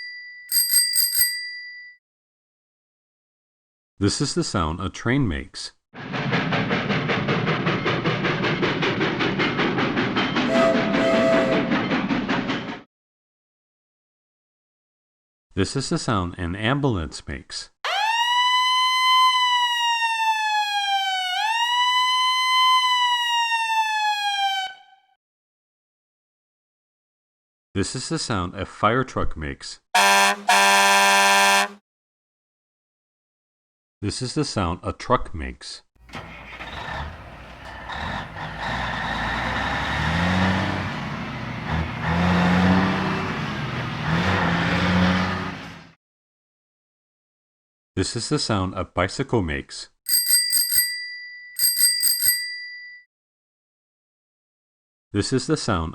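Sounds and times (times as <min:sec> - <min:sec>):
ambulance siren wailing: 0:17.9 - 0:25.0
truck engine revving: 0:36.1 - 0:45.9.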